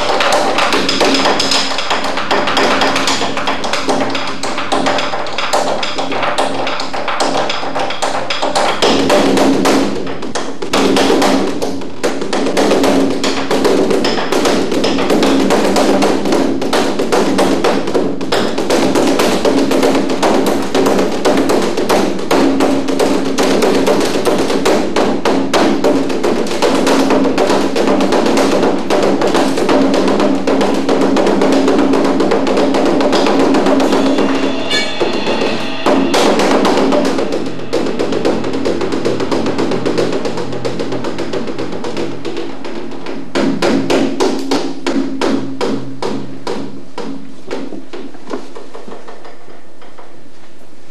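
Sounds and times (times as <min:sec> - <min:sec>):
sharp wooden taps: 0:00.0 - 0:24.7
fast drum strikes: 0:00.0 - 0:49.8
low held tone: 0:33.6 - 0:39.8.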